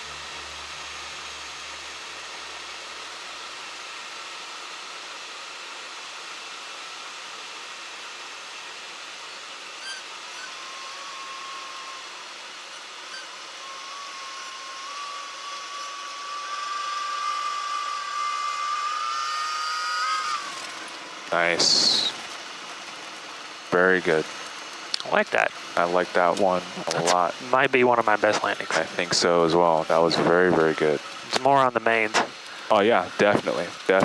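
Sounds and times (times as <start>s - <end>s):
cockpit engine and air noise: 20.0s - 34.0s.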